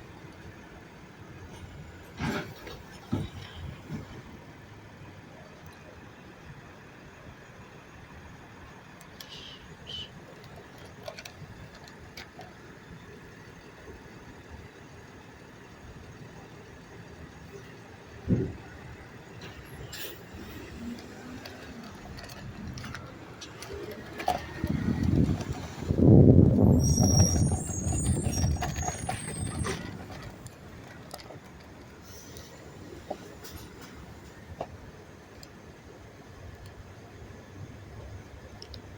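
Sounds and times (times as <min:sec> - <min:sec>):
garbage truck engine rumbling: 0:00.0 - 0:38.9
short high squeaks: 0:26.5 - 0:30.4.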